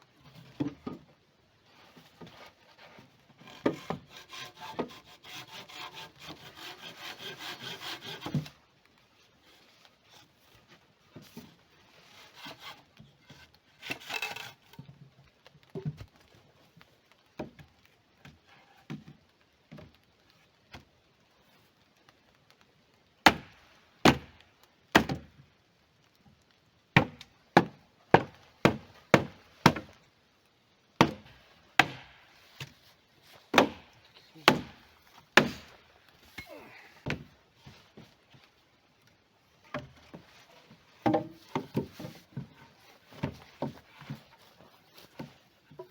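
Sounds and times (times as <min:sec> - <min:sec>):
hand saw cutting wood: 0:02.3 - 0:08.5, 0:12.0 - 0:14.7, 0:27.0 - 0:29.9, 0:31.0 - 0:35.8
faint handling sounds: 0:29.9 - 0:45.9.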